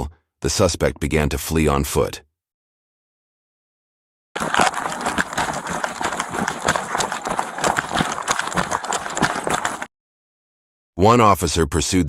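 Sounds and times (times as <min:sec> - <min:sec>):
footsteps of person running: 0:04.4 - 0:09.9.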